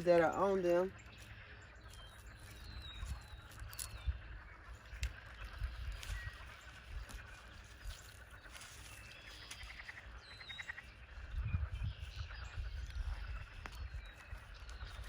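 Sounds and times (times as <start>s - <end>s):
wind on microphone: 1.8s - 15.0s.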